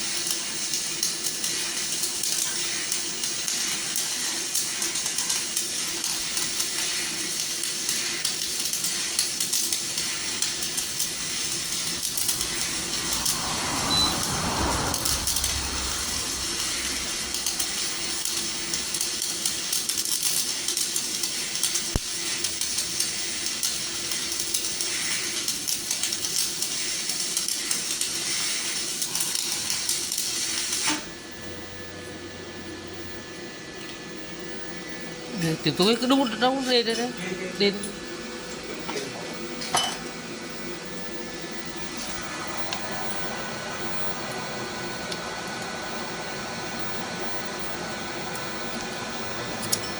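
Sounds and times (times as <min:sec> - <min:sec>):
electric arc welding crackle: 0:00.0 - 0:31.1, 0:35.3 - 0:37.9.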